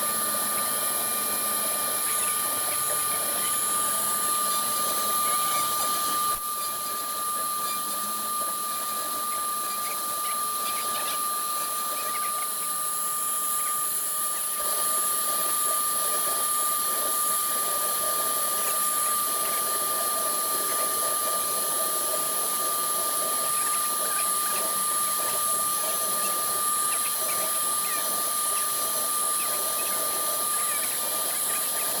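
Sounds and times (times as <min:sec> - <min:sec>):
router spindle whining: 0:00.0 - 0:32.0.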